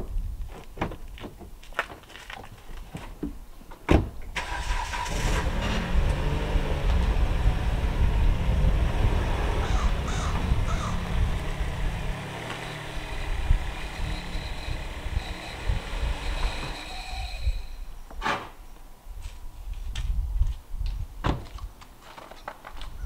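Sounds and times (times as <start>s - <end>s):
car engine running: 4.4s - 17.7s.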